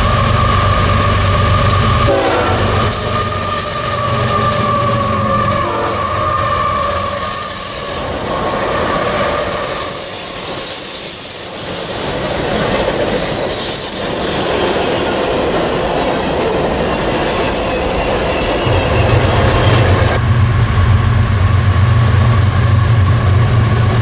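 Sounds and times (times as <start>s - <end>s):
high-pitched wheel squeals: 0.0s - 12.8s
train cars rumbling on rails: 0.0s - 24.0s.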